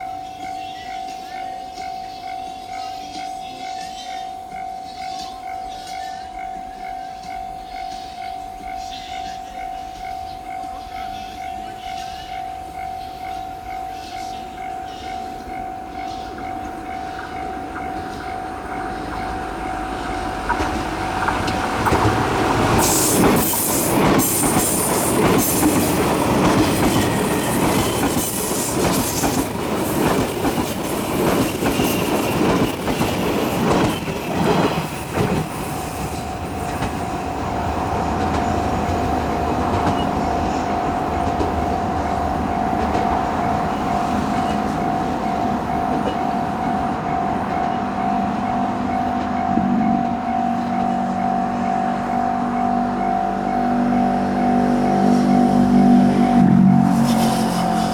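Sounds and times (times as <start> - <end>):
train wheels clattering on rail joints: 14.9 - 53.0
level crossing bell ringing: 35.9 - 56.8.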